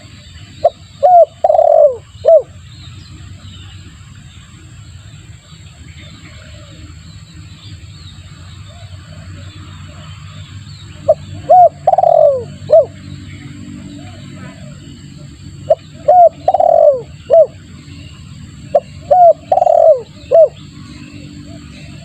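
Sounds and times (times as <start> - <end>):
dove cooing: 0.0 - 2.6, 11.0 - 13.0, 15.6 - 22.0
steady low hum: 0.0 - 22.0.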